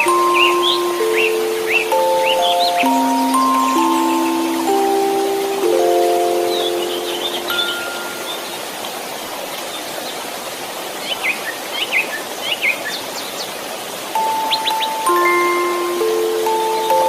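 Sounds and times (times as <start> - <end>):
held chime note: 0.0 - 8.4, 14.2 - 17.0
white noise hiss: 0.0 - 17.0.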